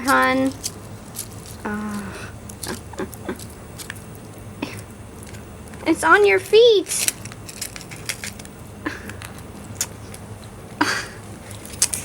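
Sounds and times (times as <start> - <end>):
lizard eating with wet squishing: 0.0 - 5.9, 11.3 - 12.0.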